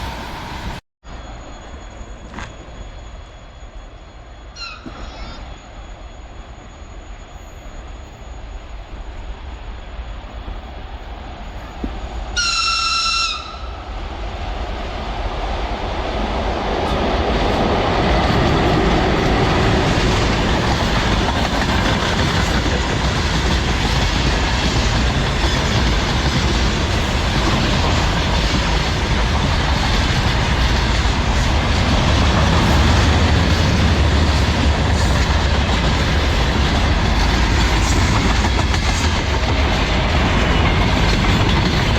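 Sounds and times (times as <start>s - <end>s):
freight train rumbling and clacking: 0.0s - 41.9s
high locomotive horn: 12.4s - 13.9s.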